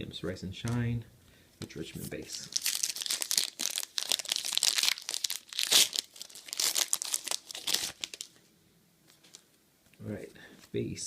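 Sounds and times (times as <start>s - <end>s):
plastic wrapper crinkling and tearing: 2.3s - 8.4s.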